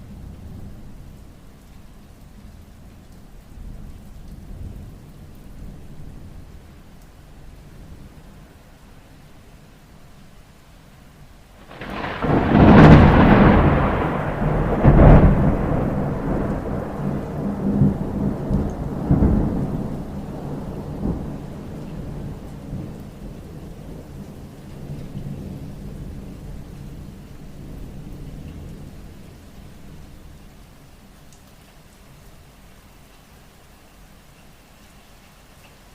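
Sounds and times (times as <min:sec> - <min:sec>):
steady rain: 0:00.0 - 0:35.9
thunder cracking and rumbling: 0:11.6 - 0:29.0.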